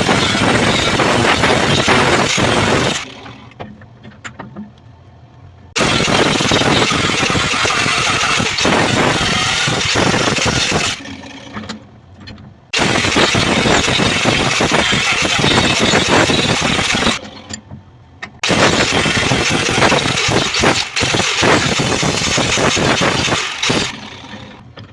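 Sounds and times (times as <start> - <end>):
power grinder grinding steel: 0.0 - 3.5, 5.8 - 11.7, 12.8 - 17.4, 18.4 - 24.6.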